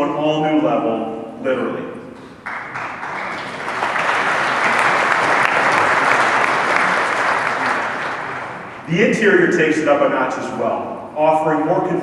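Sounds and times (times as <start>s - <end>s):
audience applauding: 2.2s - 8.9s.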